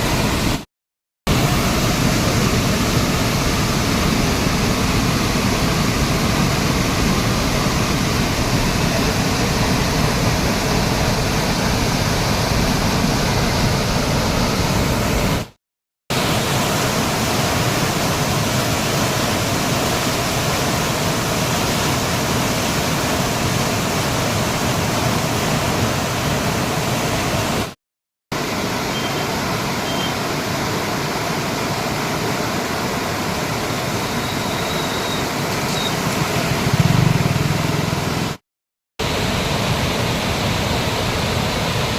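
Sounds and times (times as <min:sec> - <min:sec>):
rushing floodwater: 0:01.3 - 0:27.8, 0:28.4 - 0:38.4, 0:39.0 - 0:41.9.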